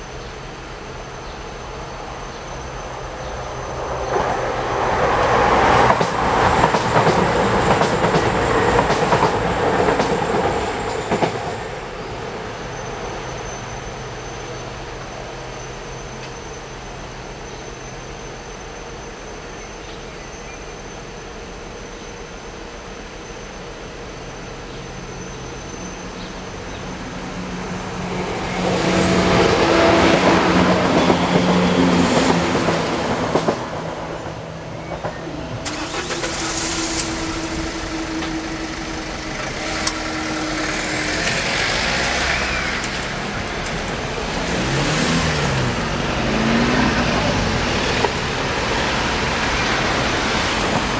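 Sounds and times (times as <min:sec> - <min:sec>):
train passing: 0:00.0 - 0:50.9
cars accelerating: 0:35.6 - 0:50.9.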